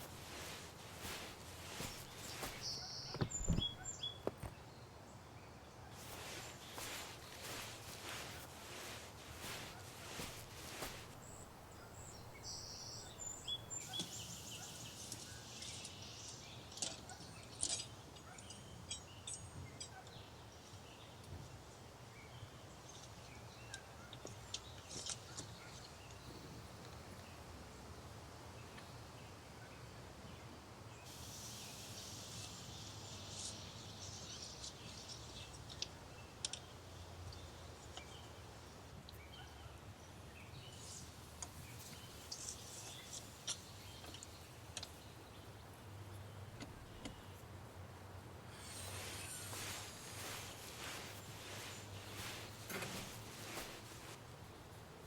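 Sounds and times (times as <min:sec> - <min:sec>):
birds chirping: 0:00.0 - 0:05.0, 0:05.9 - 0:16.8, 0:48.4 - 0:54.4.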